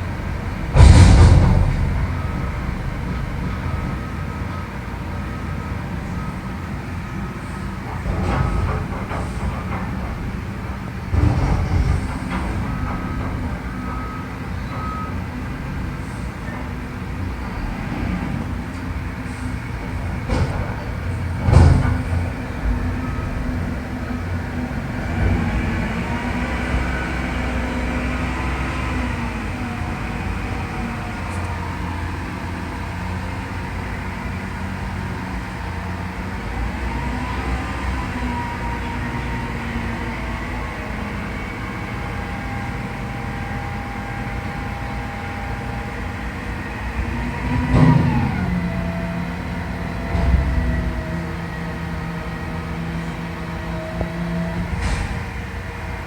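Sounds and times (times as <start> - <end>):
diesel truck engine revving: 0.0 - 6.4, 15.2 - 56.0
loud metal clang: 0.6 - 4.0.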